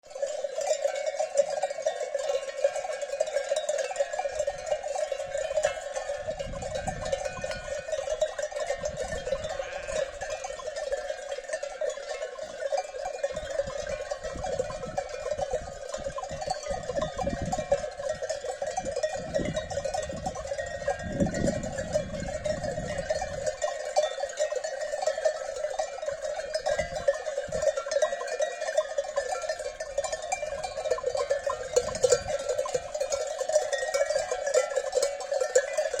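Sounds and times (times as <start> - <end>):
livestock bells clanking: 0.0 - 36.0
wind rumble on microphone: 5.4 - 10.3, 13.3 - 23.7, 26.5 - 27.8, 29.8 - 33.1.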